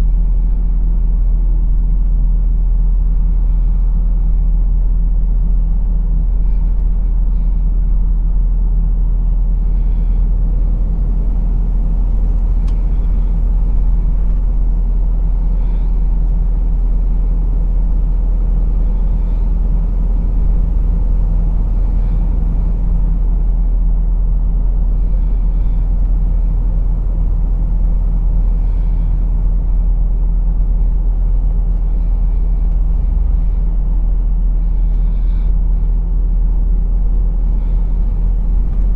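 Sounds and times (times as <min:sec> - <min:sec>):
truck diesel engine running: 0:00.0 - 0:38.9
road noise: 0:09.4 - 0:29.3.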